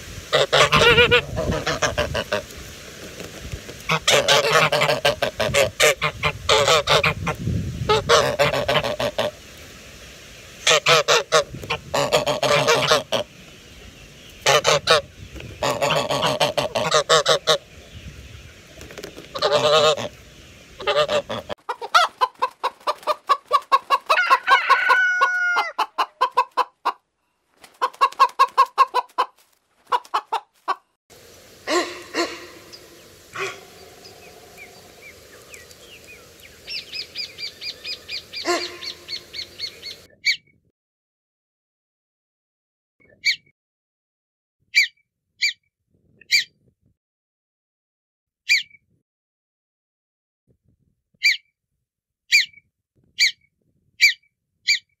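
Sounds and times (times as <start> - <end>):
honking bird calls: 0.3 - 2.4, 3.9 - 7.3, 10.6 - 13.3, 14.4 - 17.7, 19.3 - 20.2, 20.8 - 26.4, 31.7 - 40.4
cackling and chirping bird calls: 0.3 - 2.5, 3.9 - 9.4, 10.6 - 27.0, 27.6 - 40.5, 44.8 - 45.6, 46.3 - 46.5, 48.5 - 48.8, 51.2 - 51.4, 52.3 - 52.6, 53.2 - 55.0.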